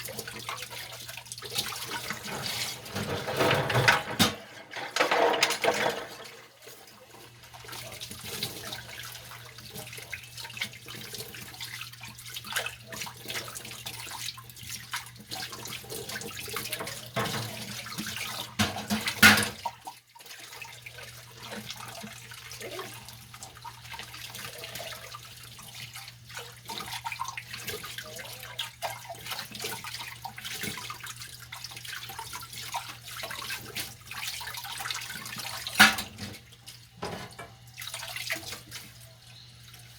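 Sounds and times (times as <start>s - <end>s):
dishes being scrubbed: 0.0s - 39.2s
tap water running: 0.0s - 39.9s
dishes clattering: 1.8s - 6.8s, 16.8s - 17.7s, 18.5s - 19.7s, 35.6s - 37.6s
dishes clinking: 2.0s - 6.5s, 18.6s - 19.6s, 35.8s - 36.4s, 37.0s - 37.6s.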